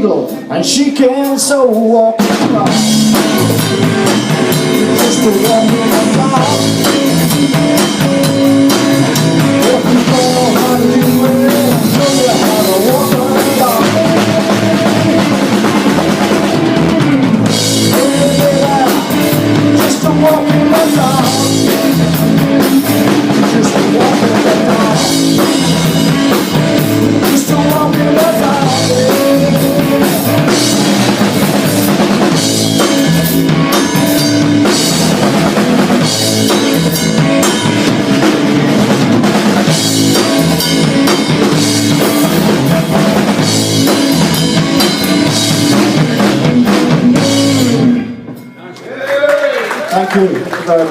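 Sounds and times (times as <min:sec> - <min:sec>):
live rock band playing: 0:00.0 - 0:48.8
bass drum and snare: 0:02.2 - 0:47.9.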